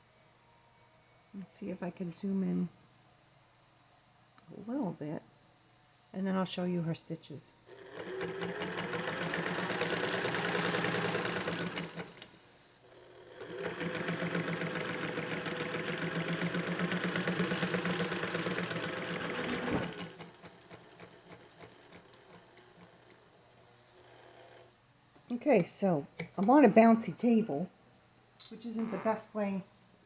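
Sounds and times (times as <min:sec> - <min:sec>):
sewing machine running: 0:07.7 - 0:12.4, 0:13.1 - 0:23.2
sewing machine mechanism clicking: 0:07.8 - 0:12.3, 0:13.4 - 0:23.2.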